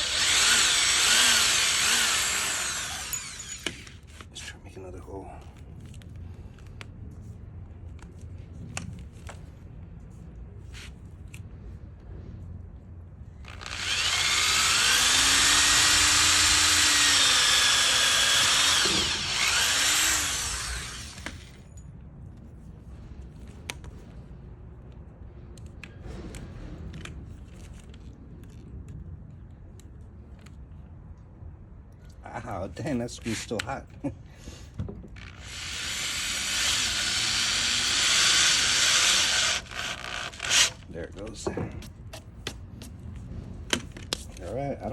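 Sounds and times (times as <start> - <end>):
power drill boring into wood: 0.0 - 4.0, 13.5 - 21.6, 35.2 - 40.9.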